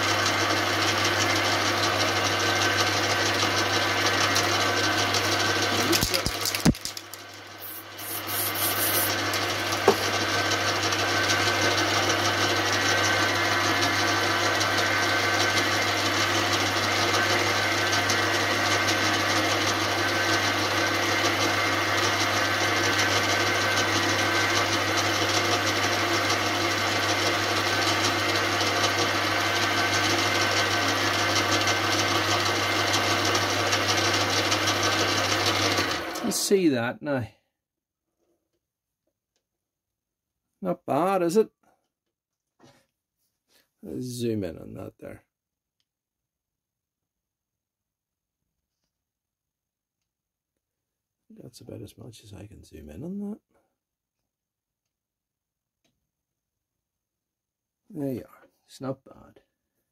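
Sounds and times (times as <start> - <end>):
electric motor tool humming: 1.7 - 15.9, 16.5 - 36.3.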